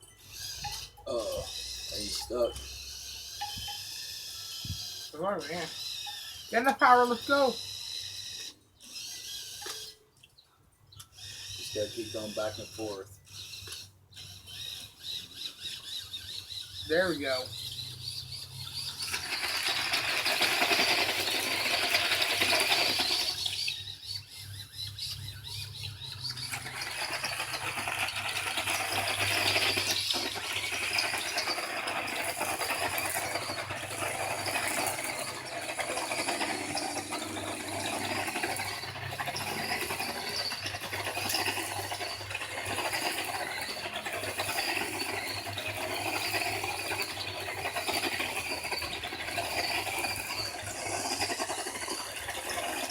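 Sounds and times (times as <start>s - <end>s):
electric motor whining and grinding: 16.0s - 52.9s.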